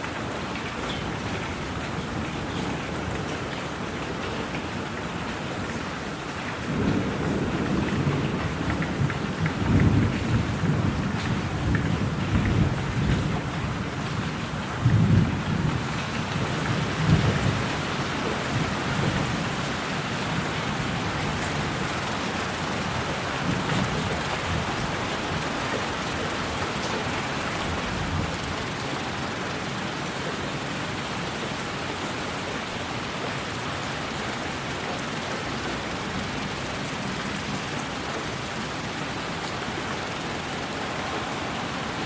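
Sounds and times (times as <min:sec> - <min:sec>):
steady rain: 0:00.0 - 0:42.0
rolling thunder: 0:06.6 - 0:17.9.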